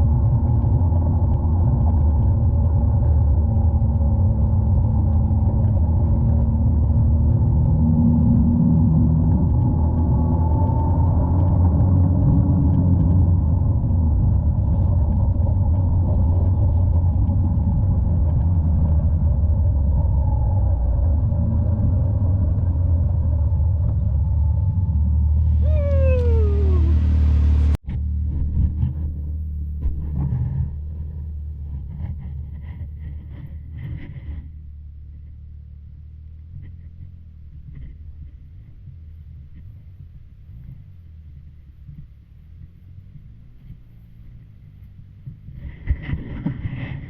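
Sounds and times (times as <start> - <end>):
off-road vehicle engine rumble: 0.0 - 47.0
pitched whine falling: 0.8 - 28.7.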